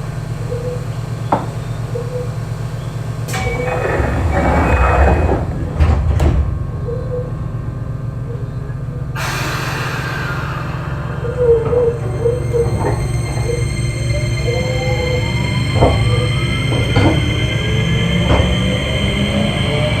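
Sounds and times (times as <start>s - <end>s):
train car low hum: 0.0s - 20.0s
sliding doors with rush of air: 3.2s - 6.6s
air hiss burst: 9.2s - 12.2s.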